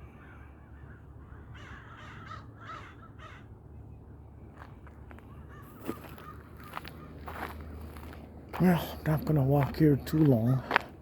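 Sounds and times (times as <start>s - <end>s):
bird calling: 0.0s - 3.6s, 4.6s - 7.6s
steady low hum: 0.0s - 11.0s.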